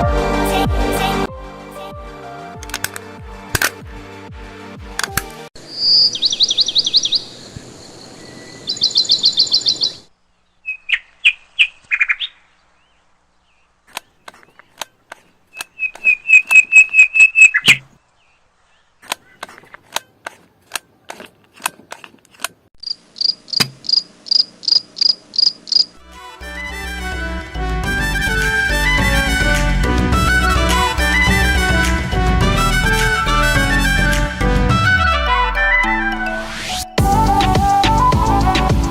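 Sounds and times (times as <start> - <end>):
high-pitched chirping trills: 5.6 - 11.1, 15.6 - 17.8
sharp clicks: 19.0 - 25.9.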